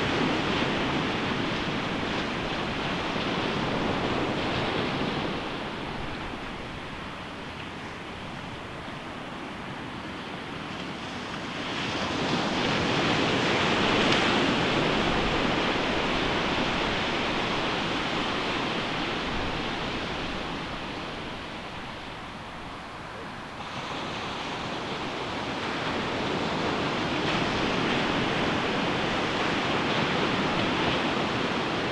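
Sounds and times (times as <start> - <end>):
ocean waves crashing on beach: 10.6 - 31.9.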